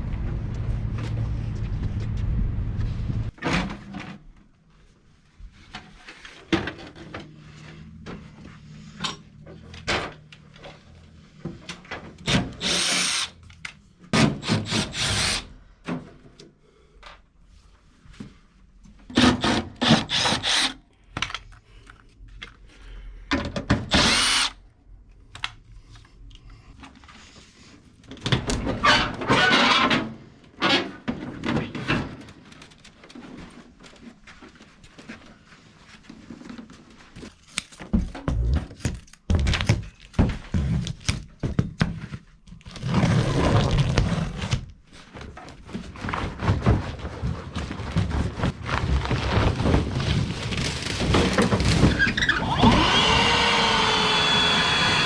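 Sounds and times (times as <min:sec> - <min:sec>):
steady low drone: 0:00.0 - 0:03.3
cordless drill running: 0:12.6 - 0:13.3, 0:14.6 - 0:15.5, 0:19.9 - 0:20.8, 0:23.9 - 0:24.6, 0:52.3 - 0:55.0.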